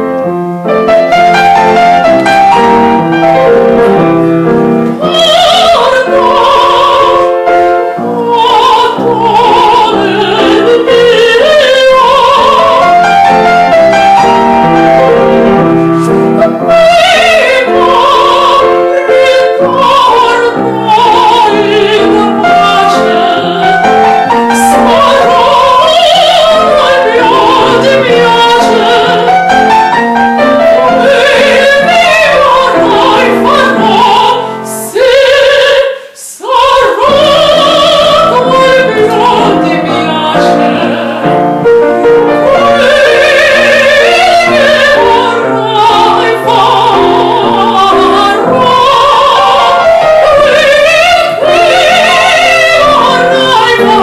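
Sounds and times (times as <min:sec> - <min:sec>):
piano accompaniment: 0:00.0 - 0:54.0
operatic solo voice singing: 0:30.7 - 0:41.4.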